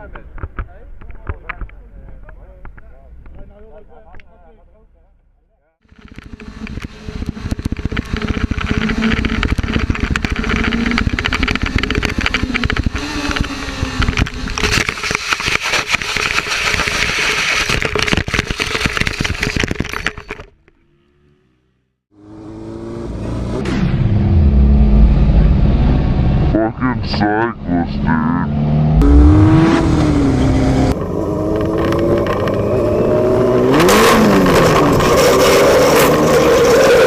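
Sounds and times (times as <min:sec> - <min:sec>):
motorcycle engine running: 0:05.8 - 0:14.6
engine sound: 0:20.6 - 0:36.1.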